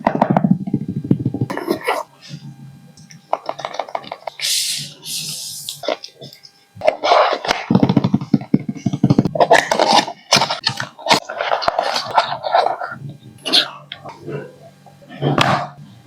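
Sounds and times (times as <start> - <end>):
rustling and scraping packaging: 3.3 - 6.2, 6.8 - 14.4.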